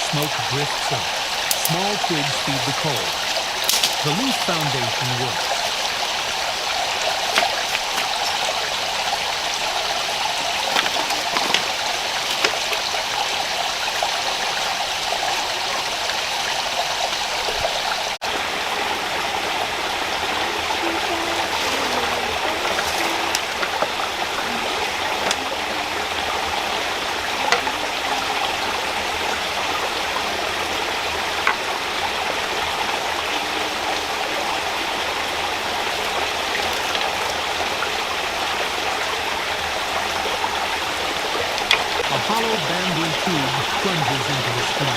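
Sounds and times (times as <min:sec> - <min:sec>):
stream rushing over rocks: 0:00.0 - 0:44.9
small sharp ticks: 0:03.6 - 0:04.0.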